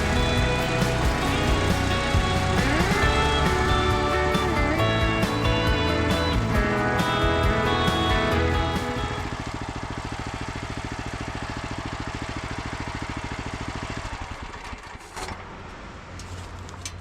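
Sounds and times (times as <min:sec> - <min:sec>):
small gas engine idling: 0:00.0 - 0:17.0.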